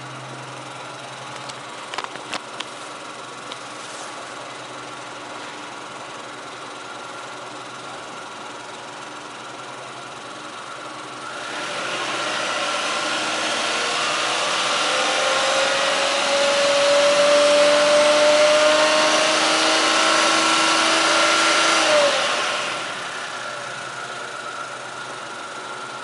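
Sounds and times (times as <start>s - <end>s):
car engine revving: 11.2s - 24.2s.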